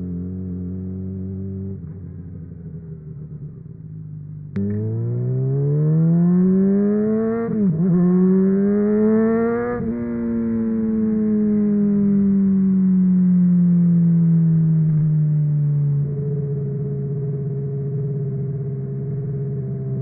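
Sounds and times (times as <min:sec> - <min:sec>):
motorcycle engine revving: 0:04.6 - 0:12.7.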